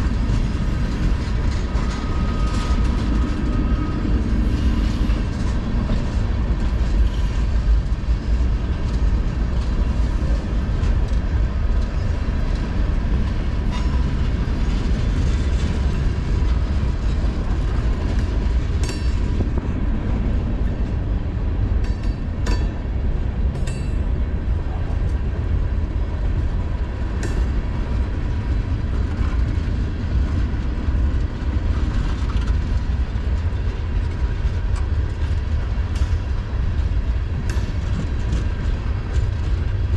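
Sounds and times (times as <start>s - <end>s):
freight train wheels rumbling: 0.0s - 39.9s
sharp metallic knocks: 21.8s - 22.9s.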